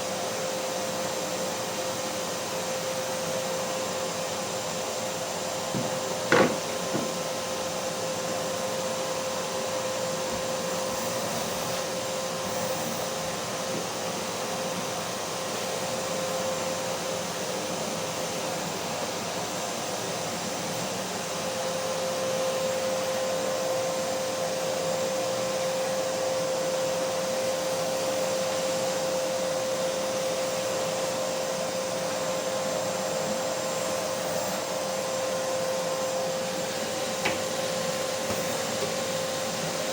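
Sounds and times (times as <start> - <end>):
vacuum cleaner motor running: 0.0 - 39.9
sharp knock: 5.8 - 7.1.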